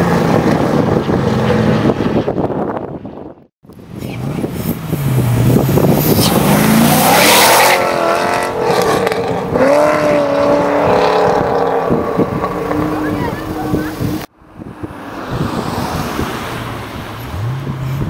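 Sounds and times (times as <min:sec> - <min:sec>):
car engine accelerating: 0:03.8 - 0:14.3.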